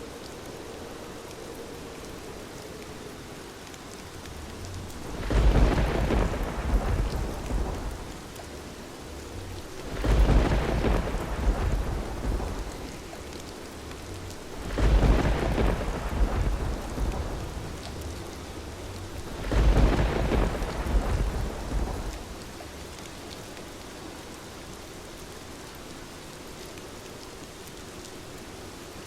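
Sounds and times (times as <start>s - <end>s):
heavy rain falling: 0.0s - 29.0s
thunder rumbling: 4.0s - 23.0s.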